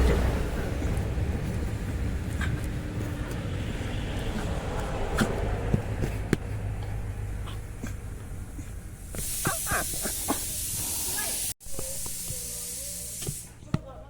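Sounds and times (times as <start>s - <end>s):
heavy rain hissing: 9.0s - 13.6s.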